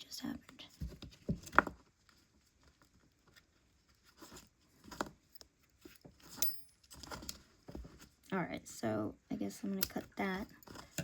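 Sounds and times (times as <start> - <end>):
hands handling yarn: 0.0 - 8.5.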